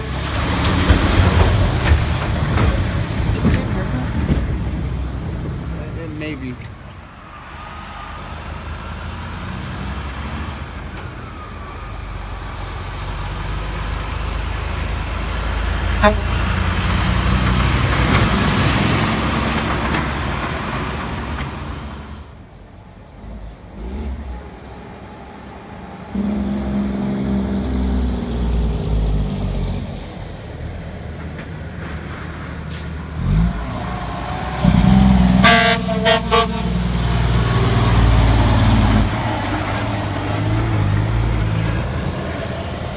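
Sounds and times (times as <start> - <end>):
diesel engine pulling past: 0.0 - 42.9
traffic on wet street: 0.0 - 42.9
horn short toots: 16.0 - 16.6, 35.3 - 37.0
tyres hissing: 31.4 - 42.9.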